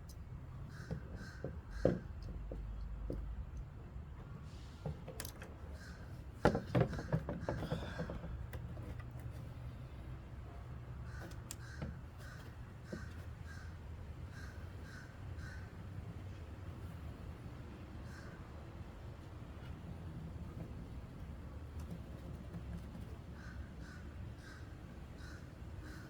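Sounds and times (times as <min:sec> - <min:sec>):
crows cawing: 0:00.7 - 0:02.1, 0:11.0 - 0:15.8, 0:18.0 - 0:18.4, 0:23.4 - 0:26.0.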